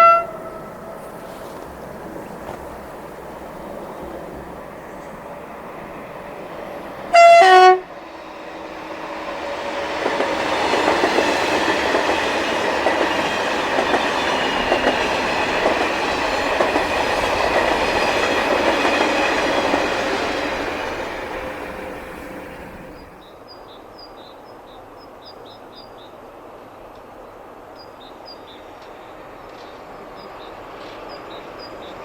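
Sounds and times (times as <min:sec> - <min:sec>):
two-tone train horn: 0:00.0 - 0:01.1, 0:07.1 - 0:09.4, 0:21.0 - 0:23.2
train wheel and rail noise: 0:00.0 - 0:32.0.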